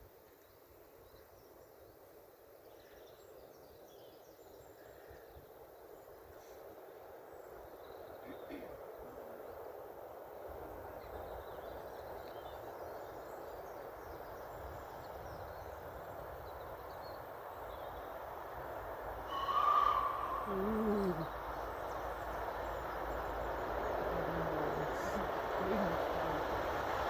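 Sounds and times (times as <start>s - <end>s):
faint birdsong: 0.0s - 27.0s
low hoot falling in pitch: 19.3s - 21.4s
distant rumble: 19.4s - 27.0s.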